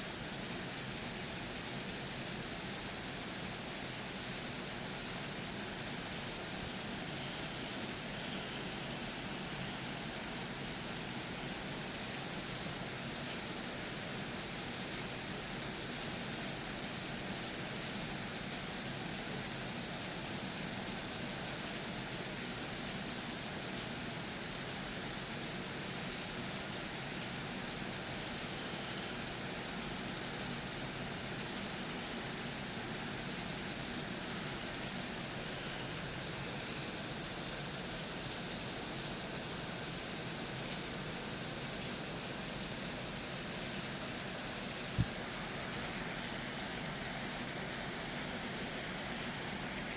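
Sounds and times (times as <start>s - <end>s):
steady hiss: 0.0s - 49.9s.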